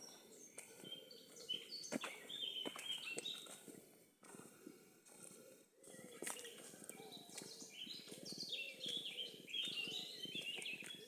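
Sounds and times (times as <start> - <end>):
songbirds singing: 0.0 - 3.6, 5.8 - 11.0
footsteps on path: 0.0 - 11.0.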